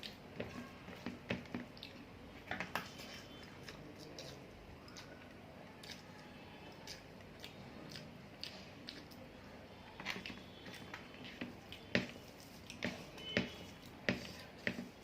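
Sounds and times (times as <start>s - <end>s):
person chewing food: 1.6s - 2.1s, 2.7s - 9.3s, 9.9s - 14.0s.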